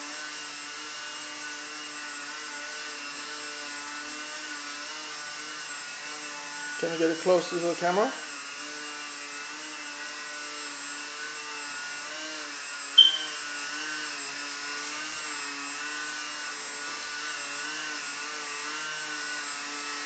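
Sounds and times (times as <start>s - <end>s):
short sharp sound: 13.0s - 13.4s.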